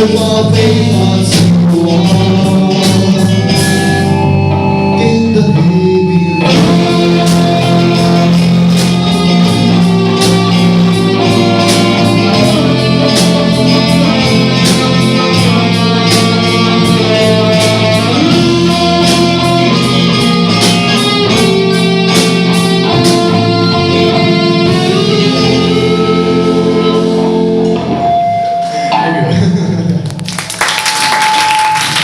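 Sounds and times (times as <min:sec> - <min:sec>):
live band guitar instrumental: 0:00.0 - 0:32.0
audience clapping: 0:30.0 - 0:32.0.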